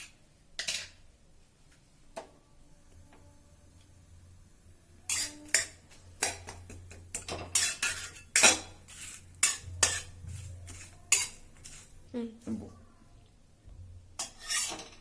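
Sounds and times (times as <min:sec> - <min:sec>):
utensil scraping and clinking pan: 0:05.0 - 0:12.0, 0:14.2 - 0:15.0.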